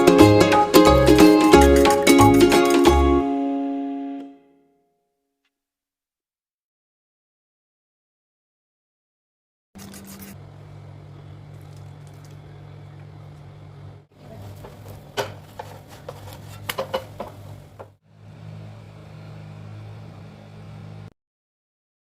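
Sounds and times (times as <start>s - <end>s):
spatula scraping and tapping pan: 14.4s - 17.9s.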